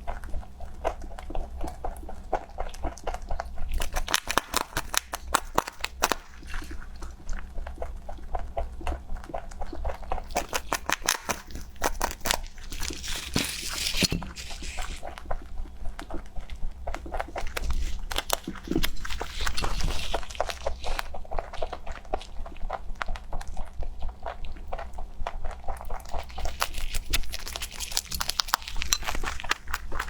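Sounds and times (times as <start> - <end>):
animal chewing crunchy food: 0.0 - 30.0
crinkling rustle: 10.2 - 15.4, 16.5 - 22.2, 25.9 - 30.0.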